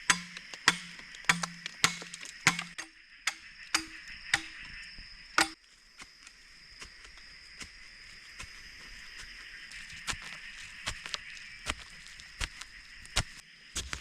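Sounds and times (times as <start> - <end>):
blade chopping wood: 0.0 - 4.7.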